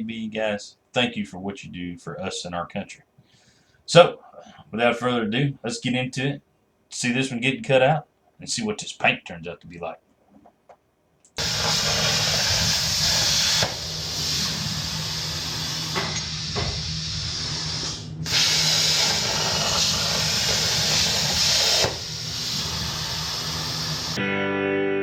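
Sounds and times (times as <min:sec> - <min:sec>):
low hum: 0:11.4 - 0:24.2
plasma torch hissing: 0:11.4 - 0:24.2.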